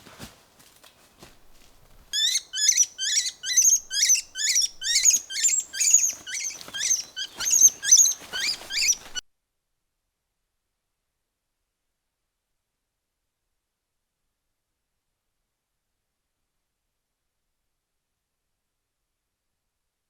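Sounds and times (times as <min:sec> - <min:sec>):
small animal squeaky chirps: 0:02.1 - 0:09.2.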